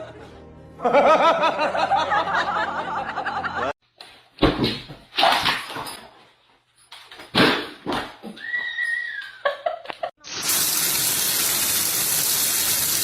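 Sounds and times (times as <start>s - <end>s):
person laughing: 9.3s - 10.1s.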